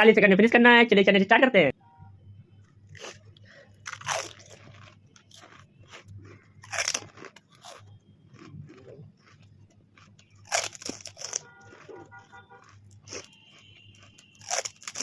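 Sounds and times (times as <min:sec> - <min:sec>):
chewing: 0:02.6 - 0:15.0
crisp shells crunching: 0:03.8 - 0:15.0.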